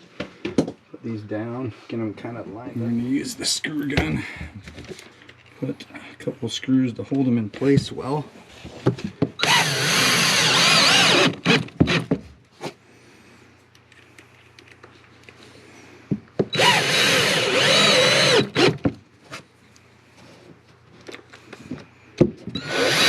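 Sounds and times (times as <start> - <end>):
screw gun driving screws: 9.4 - 12.0, 16.5 - 18.8, 22.5 - 23.0.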